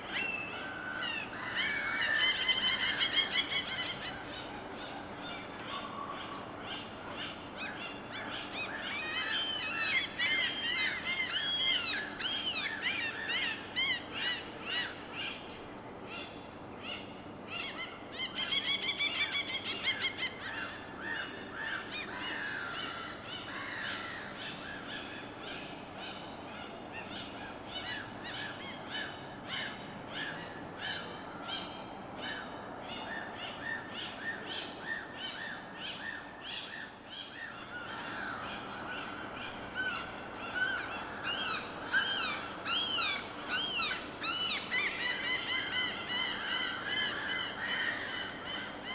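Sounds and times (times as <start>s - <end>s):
birds calling and chirping: 26.0s - 48.9s.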